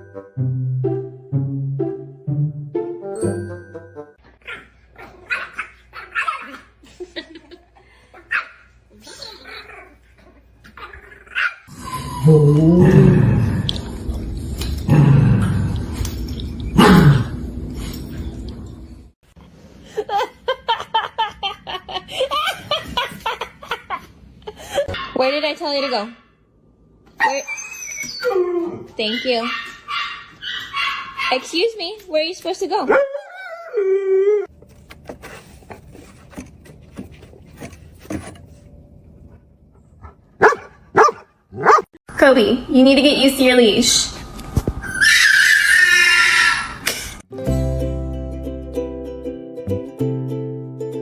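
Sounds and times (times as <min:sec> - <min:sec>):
dog barking deeply: 0:40.4 - 0:41.9.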